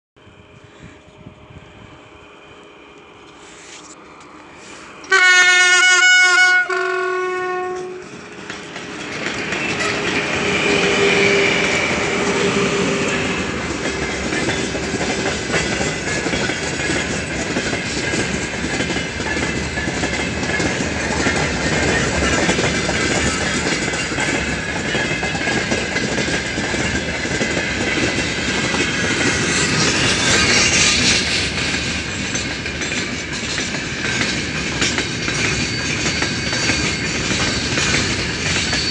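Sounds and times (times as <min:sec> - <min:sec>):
freight train rumbling past: 0:00.2 - 0:38.9
locomotive horn blast: 0:05.1 - 0:08.1.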